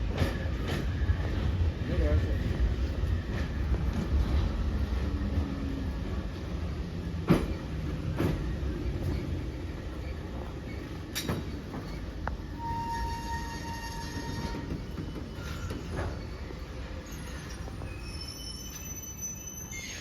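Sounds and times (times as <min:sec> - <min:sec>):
metro train rumbling: 0:00.0 - 0:20.0
train brakes squealing: 0:09.0 - 0:20.0.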